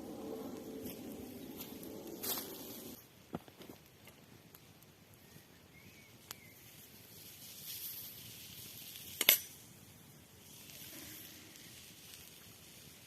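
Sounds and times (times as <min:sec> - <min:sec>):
wood fire hissing: 0:00.0 - 0:03.0, 0:06.1 - 0:13.0
fire crackling: 0:00.0 - 0:13.0.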